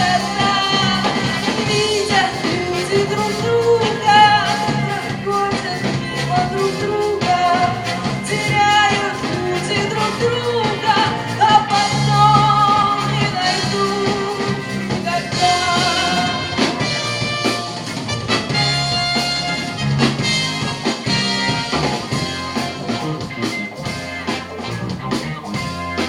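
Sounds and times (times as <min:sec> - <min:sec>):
bass: 0:00.0 - 0:26.0
drums: 0:00.0 - 0:26.0
wavering lead melody: 0:10.2 - 0:26.0.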